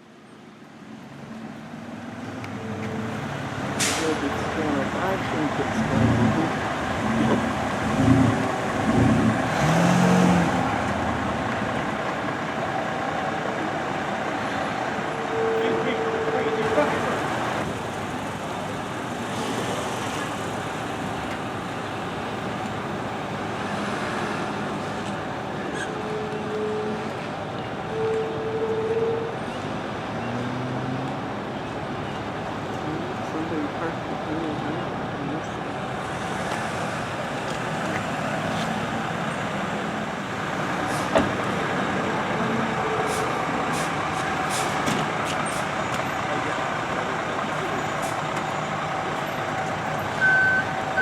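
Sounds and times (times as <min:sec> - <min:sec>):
city street traffic: 0:00.0 - 0:51.0.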